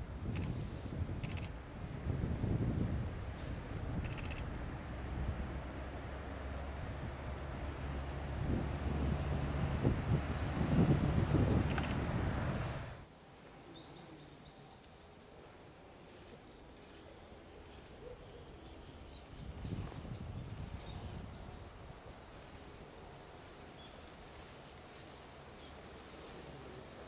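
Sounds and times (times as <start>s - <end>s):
distant small birds calling: 0.0s - 1.6s, 3.9s - 5.2s, 9.4s - 10.8s, 13.6s - 27.0s.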